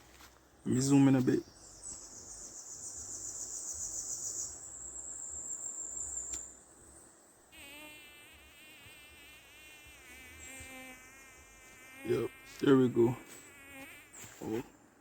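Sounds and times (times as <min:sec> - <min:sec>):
high insect whine: 0:01.6 - 0:14.7
pulsing insect call: 0:01.7 - 0:06.7
flying insect buzzing: 0:07.5 - 0:14.7.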